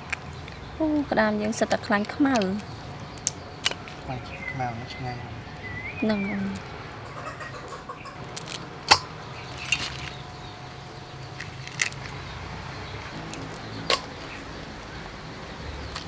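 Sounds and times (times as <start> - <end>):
faint steady background: 0.0 - 16.0.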